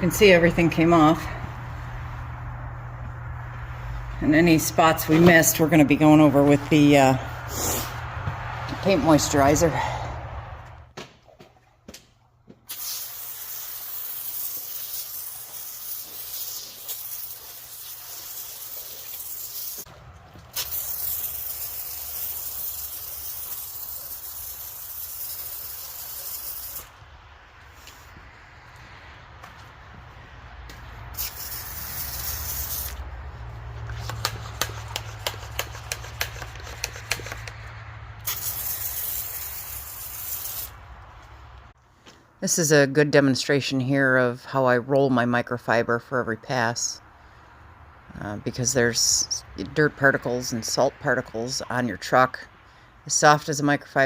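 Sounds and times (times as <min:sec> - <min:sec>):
sprayer hissing: 0:12.7 - 0:19.9, 0:20.5 - 0:27.0, 0:31.2 - 0:33.0, 0:38.2 - 0:40.8.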